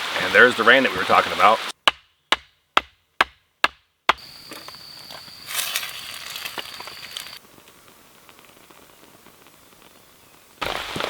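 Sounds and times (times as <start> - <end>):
rain hiss: 0.0 - 1.8, 4.3 - 11.0
wood being chopped: 1.8 - 4.6.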